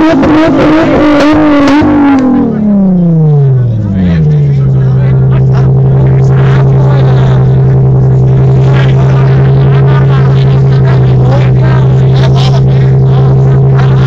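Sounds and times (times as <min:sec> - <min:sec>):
car engine revving high: 0:00.0 - 0:14.0.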